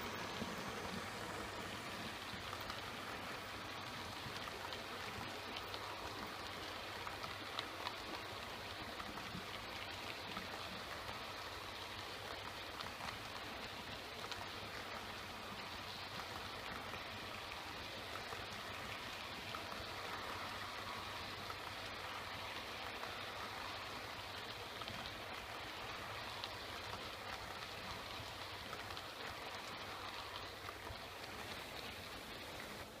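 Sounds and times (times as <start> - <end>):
faint motor hum: 0.0 - 11.9.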